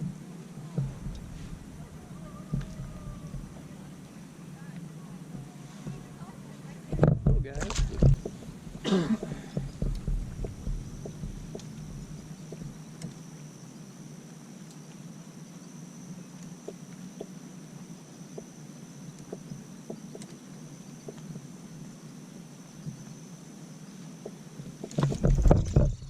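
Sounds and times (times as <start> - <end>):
high-pitched insect drone: 0.0 - 6.6
low steady hum: 0.0 - 26.0.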